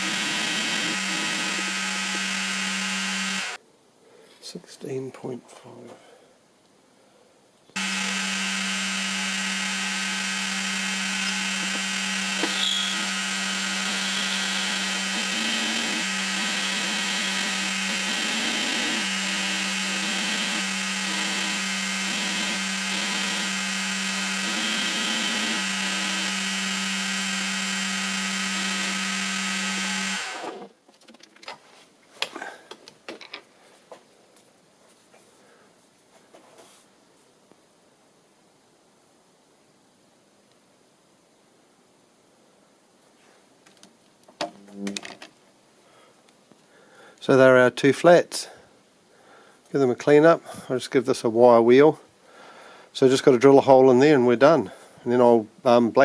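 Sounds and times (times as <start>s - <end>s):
milling machine cutting steel: 0.0s - 3.6s, 7.8s - 30.6s.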